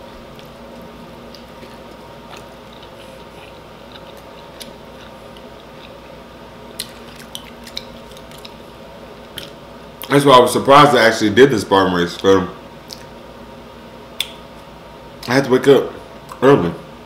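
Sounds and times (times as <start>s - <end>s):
person chewing wetly: 0.3s - 10.1s
sharp wet clicks: 6.8s - 8.6s, 14.2s - 14.4s.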